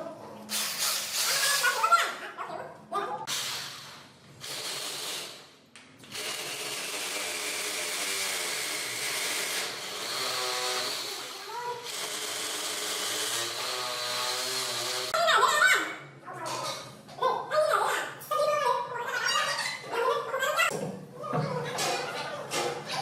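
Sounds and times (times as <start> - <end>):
power tool whirring: 3.3 - 15.2.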